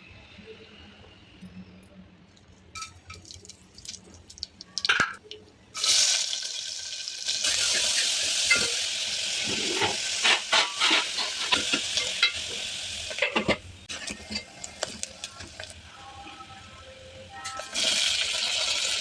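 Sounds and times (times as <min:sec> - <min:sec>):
food sizzling in hot oil: 0:05.8 - 0:15.8, 0:17.6 - 0:19.0.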